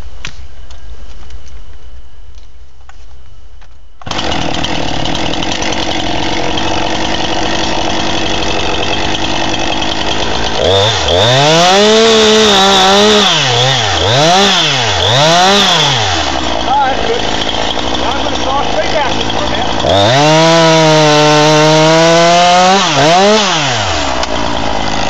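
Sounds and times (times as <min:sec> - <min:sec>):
chainsaw cutting tree: 0:04.0 - 0:25.0.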